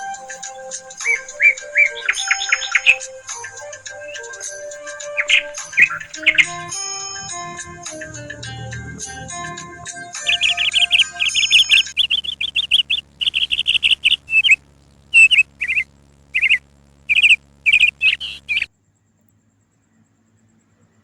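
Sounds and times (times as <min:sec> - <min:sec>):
background music: 0:00.0 - 0:15.2
small bird chirping: 0:00.0 - 0:18.7.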